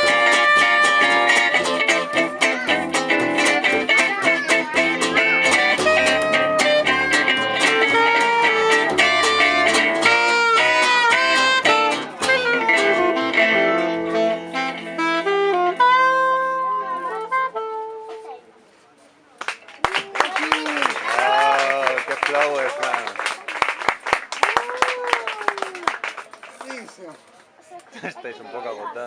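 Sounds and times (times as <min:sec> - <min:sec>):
plucked acoustic guitar: 0:00.0 - 0:18.2
gypsy jazz band playing: 0:00.0 - 0:18.4.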